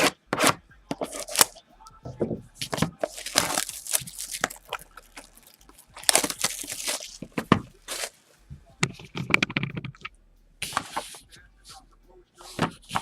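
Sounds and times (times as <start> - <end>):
card box being torn open: 0.0 - 1.6, 3.0 - 8.2.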